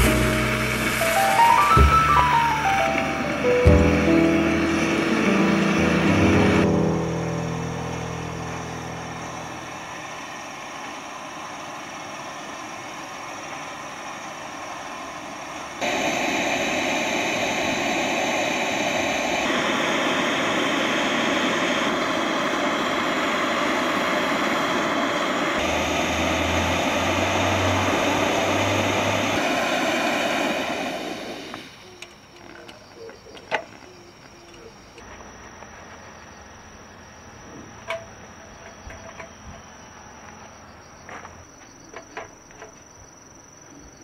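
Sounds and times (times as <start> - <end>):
camp stove burner roaring: 0.0 - 36.0, 37.3 - 40.5.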